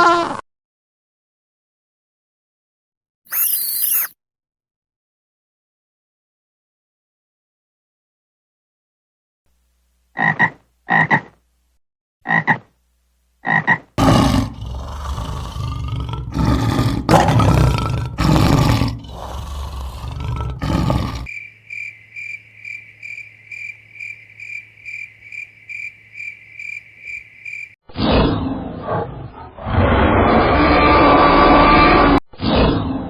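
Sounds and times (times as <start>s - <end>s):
animal croaks: 10.2s - 11.4s, 12.2s - 12.7s, 13.4s - 27.8s
loud rough animal roaring: 14.0s - 21.3s, 28.9s - 32.2s
steady pulsing high chirp: 21.3s - 27.8s.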